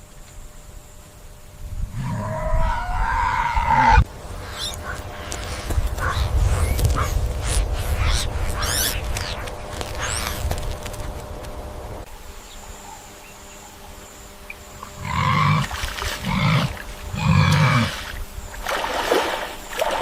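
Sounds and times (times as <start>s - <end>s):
large animal deep calls: 1.9s - 9.4s, 14.8s - 18.0s.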